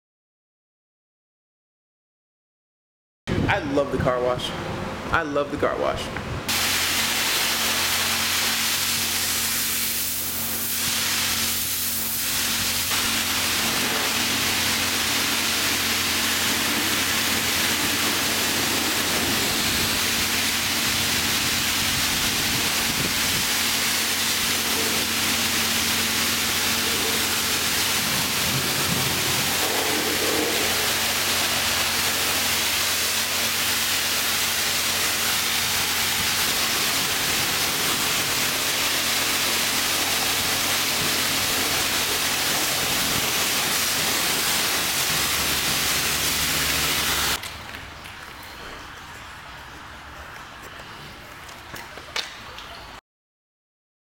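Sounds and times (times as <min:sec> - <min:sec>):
car wash hiss: 0:06.5 - 0:47.4.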